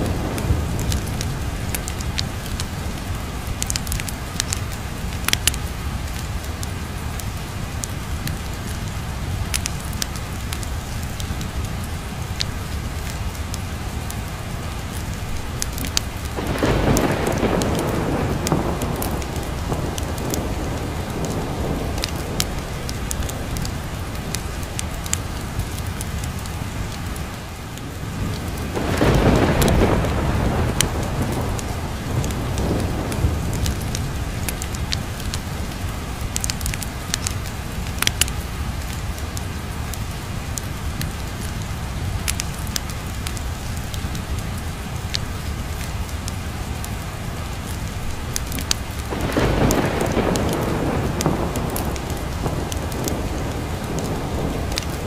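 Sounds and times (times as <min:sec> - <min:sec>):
steady rain: 0:00.0 - 0:55.0
wood fire crackling: 0:00.0 - 0:55.0
thunder rolling: 0:15.7 - 0:24.9, 0:28.0 - 0:35.3, 0:49.0 - 0:55.0.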